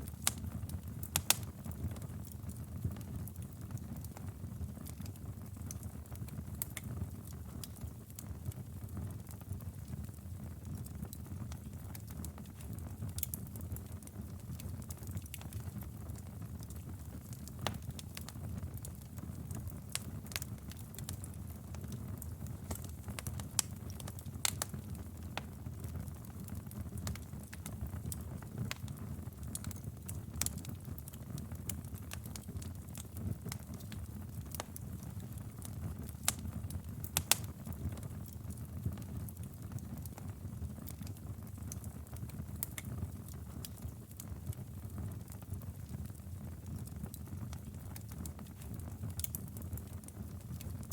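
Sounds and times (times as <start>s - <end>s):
low rumble of flames: 0.0s - 50.9s
logs crackling and snapping: 1.1s - 1.5s, 22.2s - 24.8s, 36.1s - 36.4s, 37.1s - 37.5s, 42.6s - 42.9s, 47.1s - 49.6s.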